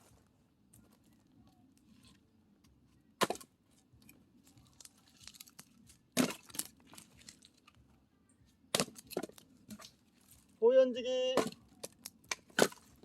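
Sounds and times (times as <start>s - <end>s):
firewood rustling and clicking: 2.0s - 7.8s, 8.7s - 10.6s, 11.4s - 13.0s.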